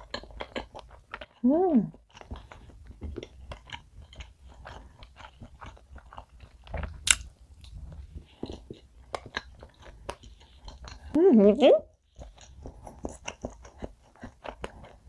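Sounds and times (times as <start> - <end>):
chewing soft cake: 0.0 - 15.0.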